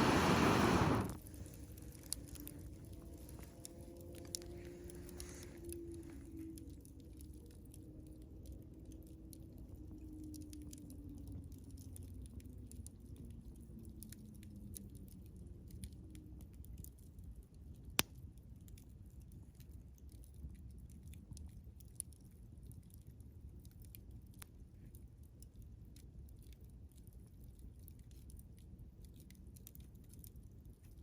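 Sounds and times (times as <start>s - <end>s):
loud sharp pop of fire: 0.0s - 1.2s
campfire crackling: 0.0s - 8.6s.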